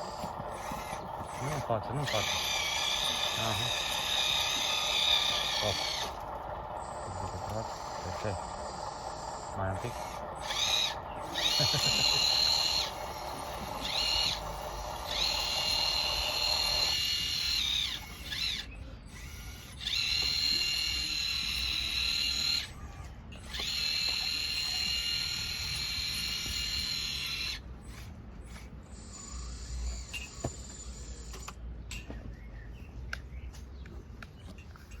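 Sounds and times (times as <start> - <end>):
electric motor whining: 0.0 - 27.6.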